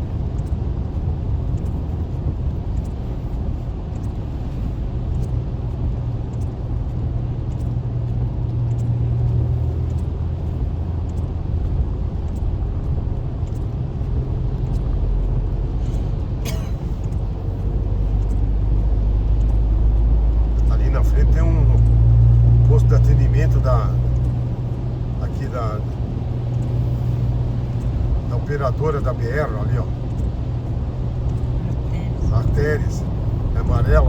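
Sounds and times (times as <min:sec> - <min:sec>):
car road and engine rumble: 0:00.0 - 0:34.0.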